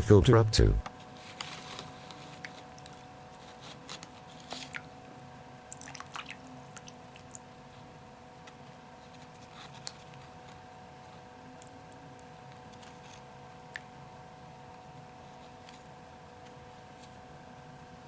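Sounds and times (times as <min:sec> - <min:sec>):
wet squishes and drips: 0:05.7 - 0:07.4.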